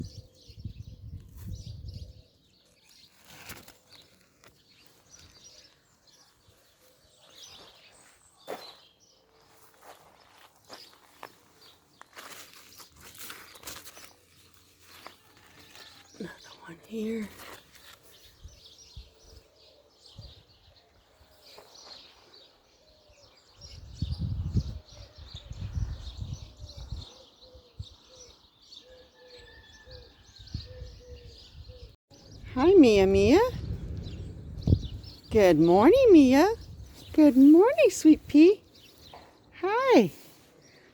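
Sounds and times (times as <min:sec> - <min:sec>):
small birds chirping: 0:00.0 - 0:40.9
low rumble: 0:32.3 - 0:35.3.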